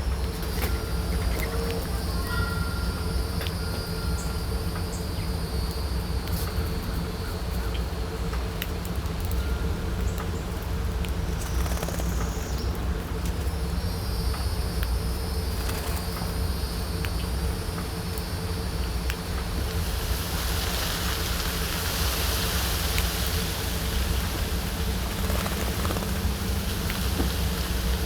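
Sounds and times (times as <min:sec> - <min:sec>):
constant low rumble: 0:00.0 - 0:28.0
insect buzz: 0:13.4 - 0:28.0.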